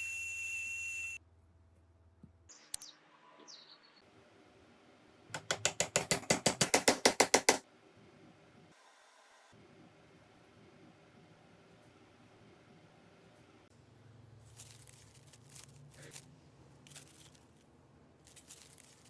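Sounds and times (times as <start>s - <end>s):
high whistle-like tone: 0.0s - 1.2s.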